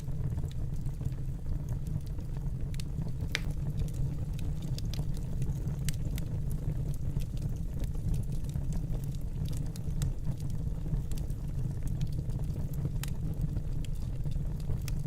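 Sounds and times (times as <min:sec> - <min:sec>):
fire crackling in fireplace: 0:00.0 - 0:15.0.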